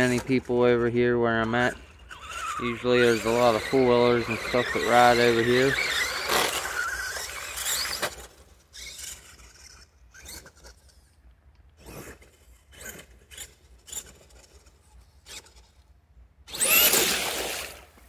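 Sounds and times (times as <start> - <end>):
electric motor whining: 1.4 - 11.0, 16.5 - 17.9.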